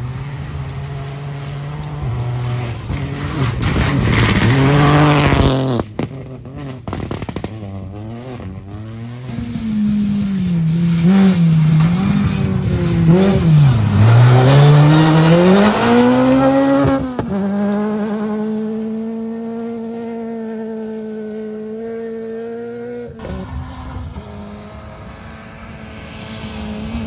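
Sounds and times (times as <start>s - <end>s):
rally car engine revving: 0.0s - 27.0s
tyres on gravel: 1.0s - 19.3s.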